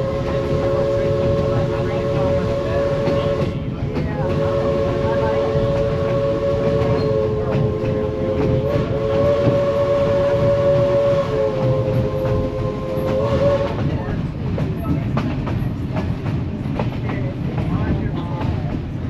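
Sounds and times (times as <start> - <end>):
steam locomotive whistle: 0.0 - 3.6, 4.2 - 13.9
train rumbling on rails: 0.0 - 19.0.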